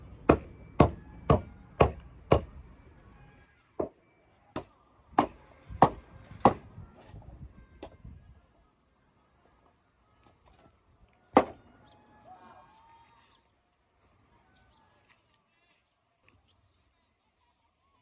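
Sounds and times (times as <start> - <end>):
axe chopping firewood: 0.3 - 2.5, 4.6 - 6.7, 11.4 - 11.6.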